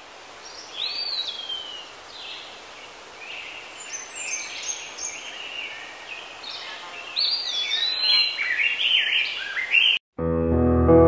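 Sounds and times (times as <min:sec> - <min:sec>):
steady outdoor hiss: 0:00.0 - 0:09.8
birds whistling and chirping: 0:06.5 - 0:10.0.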